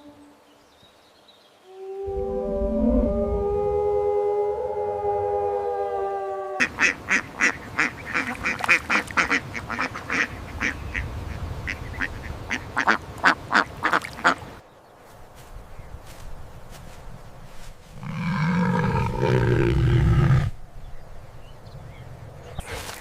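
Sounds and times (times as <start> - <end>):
long held animal call: 1.6 - 6.8.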